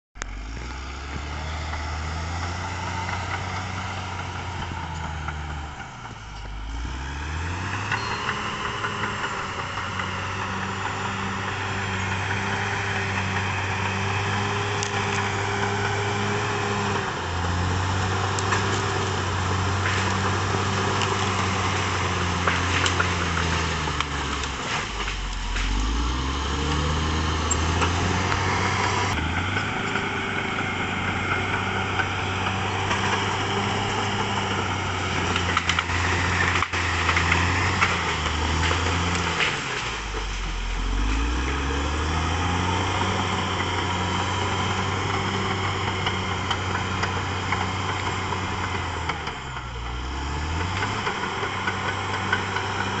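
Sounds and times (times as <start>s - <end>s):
bulldozer diesel engine running: 0.2s - 53.0s.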